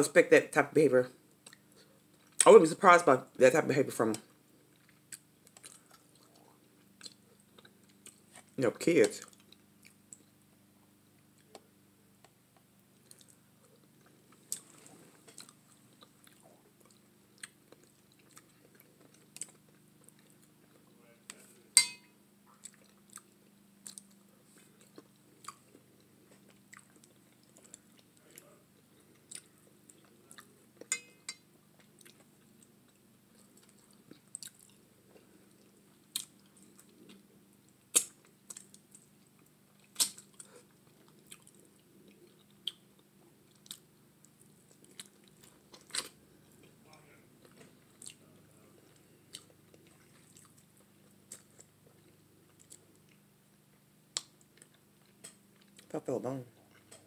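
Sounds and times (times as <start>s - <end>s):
chewing and biting bones: 4.6s - 8.4s.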